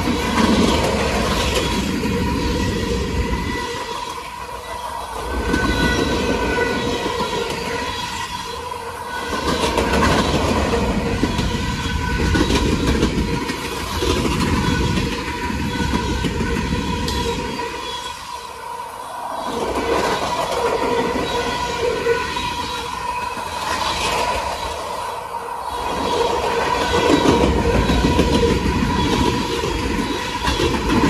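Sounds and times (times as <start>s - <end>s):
freight train cars rolling past: 0.0s - 31.0s.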